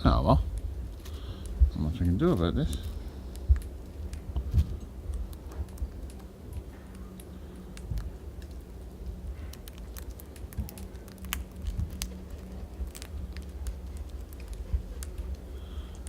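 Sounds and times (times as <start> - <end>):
birds pecking at seed: 0.0 - 16.0
constant low rumble: 0.0 - 16.0.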